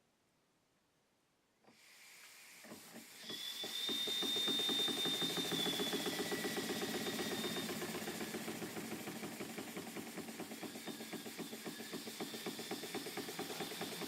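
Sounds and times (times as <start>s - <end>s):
air hissing: 1.7s - 14.0s
air leaking past valve: 1.7s - 14.0s
toy steam engine chuffing: 2.4s - 14.0s
thin high whistle: 3.2s - 7.8s.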